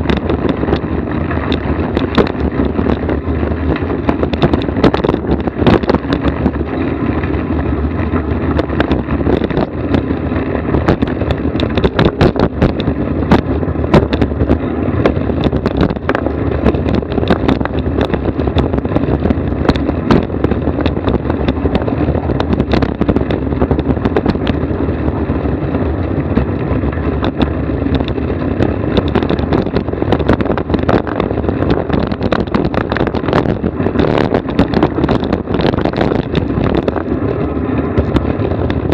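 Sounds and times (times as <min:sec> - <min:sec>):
sharp knocks and rattles: 0:00.0 - 0:38.9
vehicle road rumble: 0:00.0 - 0:38.9.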